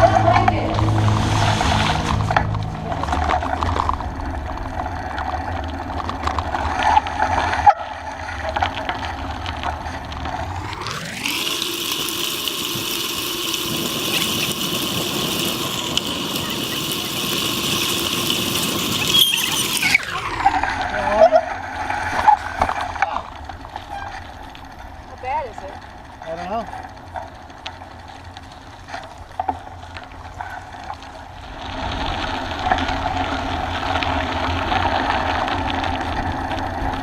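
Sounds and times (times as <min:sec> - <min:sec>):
bicycle rolling rumble: 0:00.0 - 0:37.0
wind noise while riding: 0:12.6 - 0:19.8.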